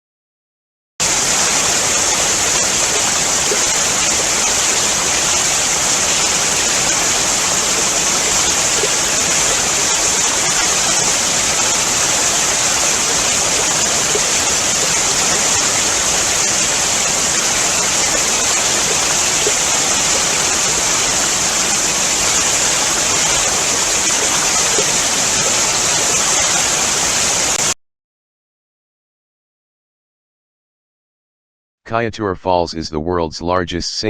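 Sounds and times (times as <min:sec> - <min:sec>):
waterfall rushing: 0:01.0 - 0:27.7.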